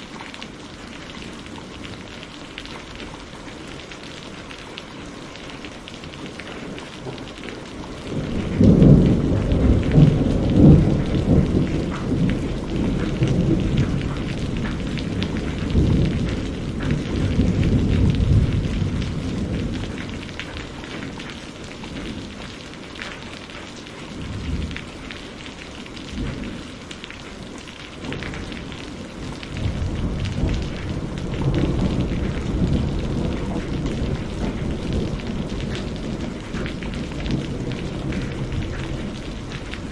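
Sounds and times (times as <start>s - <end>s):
steady rain: 0.0s - 39.9s
rolling thunder: 8.1s - 21.2s, 28.1s - 39.9s.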